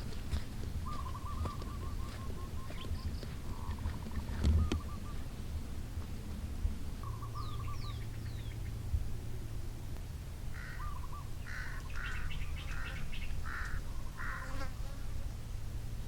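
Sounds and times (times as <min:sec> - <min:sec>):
low steady hum: 0:00.0 - 0:16.0
bird warbling: 0:00.8 - 0:05.2, 0:07.0 - 0:08.8, 0:10.5 - 0:14.5
short harsh bird calls: 0:10.5 - 0:14.6.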